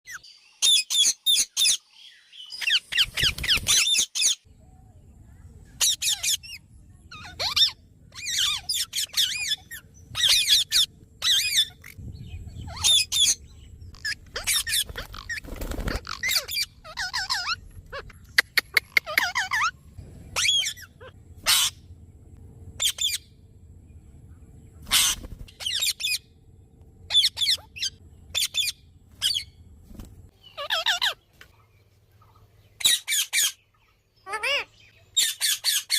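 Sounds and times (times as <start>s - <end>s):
parrots squawking: 5.8s - 12.0s, 12.6s - 21.8s, 22.8s - 23.3s, 24.8s - 26.3s, 27.1s - 29.5s, 30.5s - 31.2s, 32.8s - 33.6s, 34.2s - 35.9s
low rumble: 6.5s - 18.4s, 19.6s - 30.4s.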